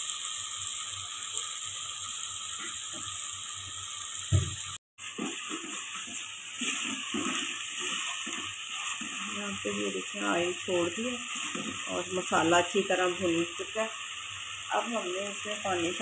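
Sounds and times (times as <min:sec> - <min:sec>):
lentils sizzling in oil: 0:00.0 - 0:16.0
wooden spatula scraping pot: 0:05.1 - 0:12.6.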